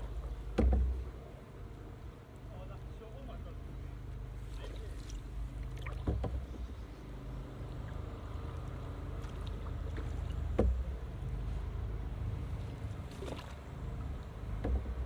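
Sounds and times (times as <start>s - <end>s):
paddle knocks: 0.2s - 1.1s, 5.8s - 6.6s, 10.0s - 10.9s, 14.5s - 15.0s
paddle strokes in water: 4.4s - 6.9s, 7.6s - 11.6s, 12.3s - 15.0s.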